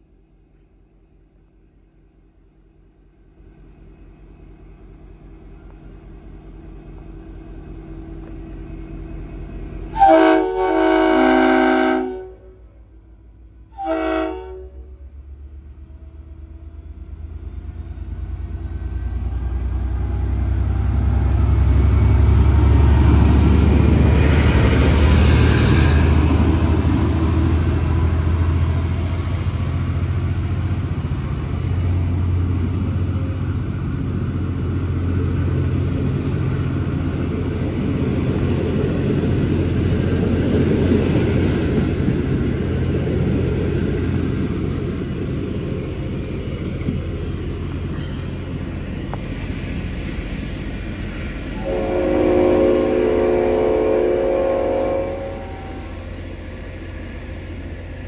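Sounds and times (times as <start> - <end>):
train low rumble: 0.0 - 58.0
locomotive horn chord: 9.9 - 12.8, 13.7 - 15.0, 51.6 - 56.1.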